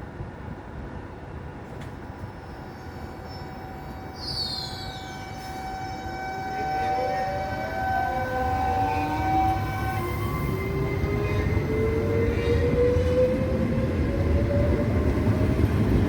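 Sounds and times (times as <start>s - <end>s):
train rumbling: 0.0s - 16.0s
high falling squeal: 2.4s - 13.4s.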